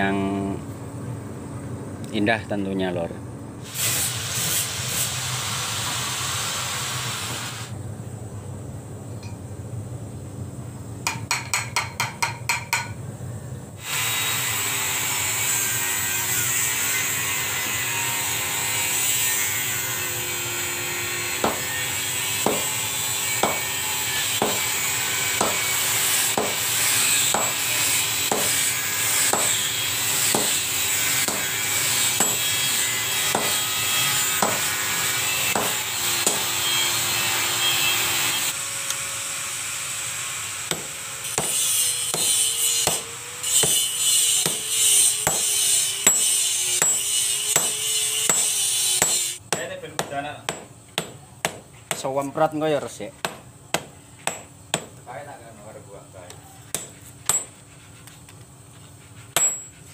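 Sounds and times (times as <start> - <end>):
workshop working noise: 0.0 - 9.6, 10.7 - 59.9
hammer blows on metal: 20.6 - 37.0.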